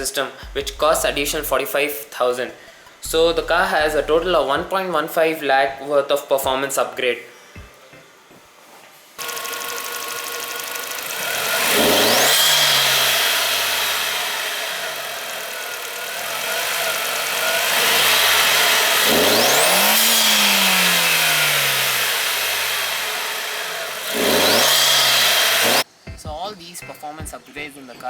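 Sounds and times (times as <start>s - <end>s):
car engine revving: 0.0s - 1.6s, 3.0s - 4.6s, 9.2s - 25.9s.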